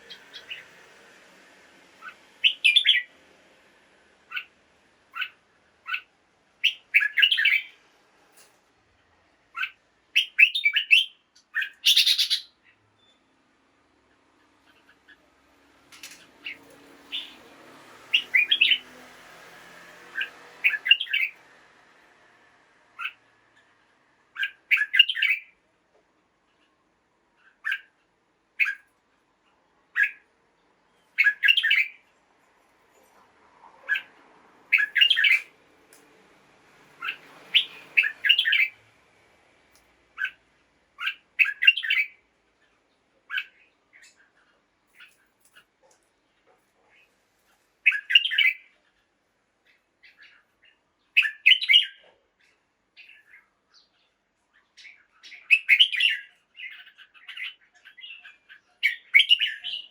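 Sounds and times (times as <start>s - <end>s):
bird chirping: 0.0s - 0.9s, 2.0s - 3.2s, 4.3s - 7.8s, 9.5s - 13.4s, 16.0s - 19.0s, 20.0s - 21.5s, 22.9s - 25.6s, 27.4s - 28.0s, 28.6s - 32.1s, 33.8s - 35.6s, 36.9s - 38.9s, 40.1s - 40.4s, 41.0s - 45.9s, 47.8s - 59.9s.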